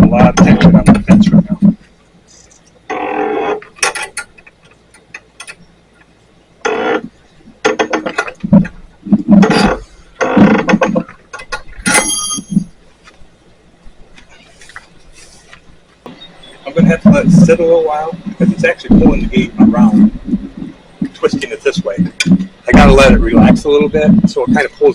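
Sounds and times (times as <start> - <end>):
high metallic ring: 11.9 - 12.7.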